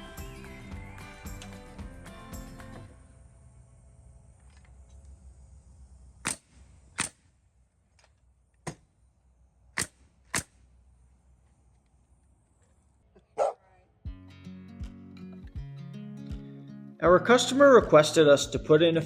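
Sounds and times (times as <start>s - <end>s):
nail gun firing: 6.2s - 7.4s, 9.7s - 10.6s.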